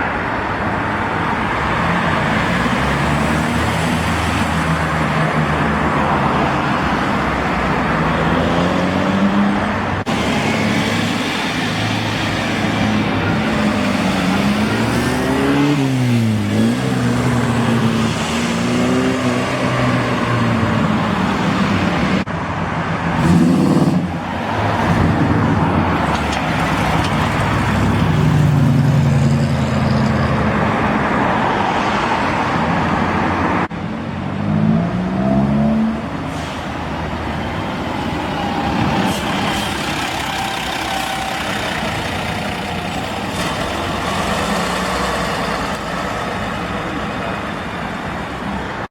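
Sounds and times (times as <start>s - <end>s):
cars driving past revving: 23.0s - 47.7s.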